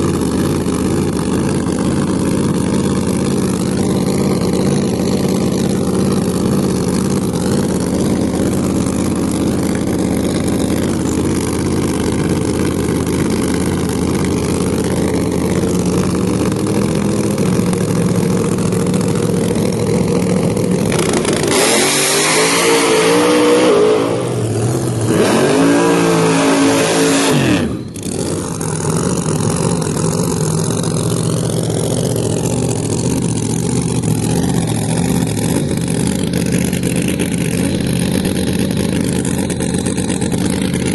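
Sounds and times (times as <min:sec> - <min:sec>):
race car engines rumbling: 0:00.0 - 0:40.9
race car full throttle: 0:00.0 - 0:40.9.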